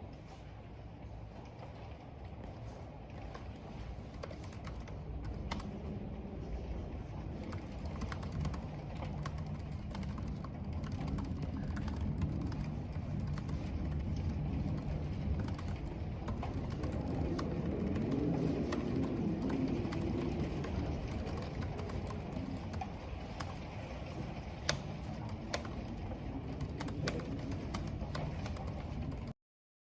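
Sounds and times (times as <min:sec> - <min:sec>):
wind rumbling: 0:00.0 - 0:29.3
keyboard keys clicking: 0:04.1 - 0:05.7, 0:07.4 - 0:23.6, 0:24.5 - 0:29.3.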